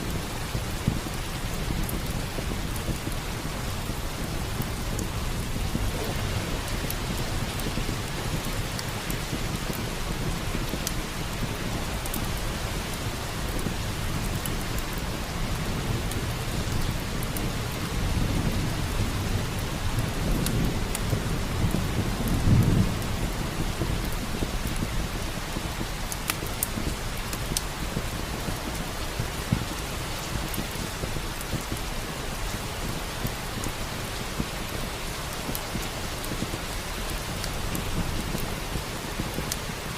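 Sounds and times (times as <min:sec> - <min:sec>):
steady rain falling: 0:00.0 - 0:39.9
wood fire crackling: 0:00.0 - 0:39.9
low thunder rumble: 0:00.1 - 0:14.4, 0:15.2 - 0:25.9.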